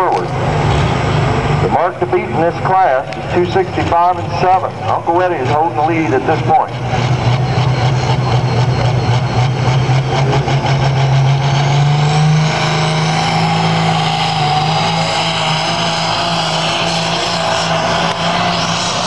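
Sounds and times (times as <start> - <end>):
tractor engine running at high revs: 0.0 - 19.0.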